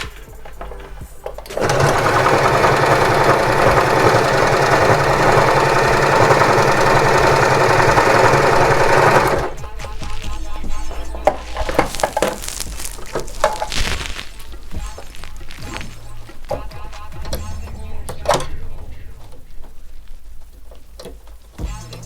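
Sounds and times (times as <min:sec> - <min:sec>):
electric sewing machine stitching: 0:00.1 - 0:09.9.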